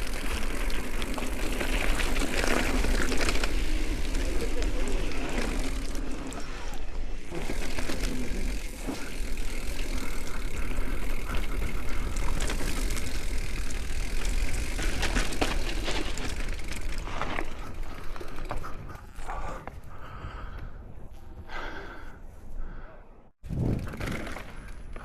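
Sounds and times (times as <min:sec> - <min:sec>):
tyres rolling over dirt: 0:00.0 - 0:06.5, 0:07.2 - 0:18.6
bike rattling over bumps: 0:00.0 - 0:19.6, 0:23.4 - 0:25.0.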